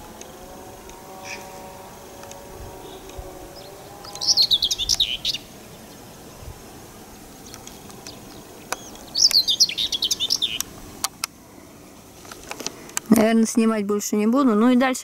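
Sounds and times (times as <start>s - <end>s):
songbird warbling: 1.2s - 11.1s.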